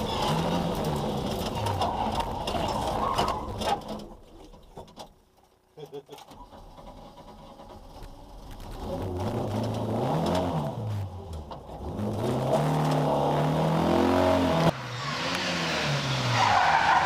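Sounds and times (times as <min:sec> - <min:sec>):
rally car engine revving hard: 0:00.0 - 0:02.8, 0:08.7 - 0:17.0.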